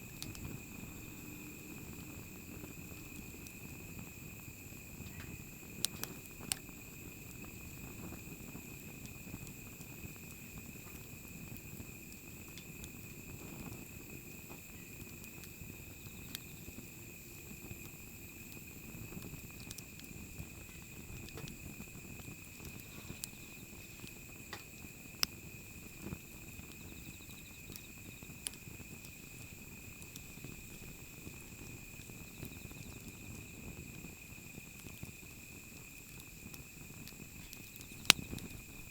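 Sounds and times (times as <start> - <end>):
fire crackles and pops: 0.0 - 38.9
wood fire rustling: 0.0 - 38.9.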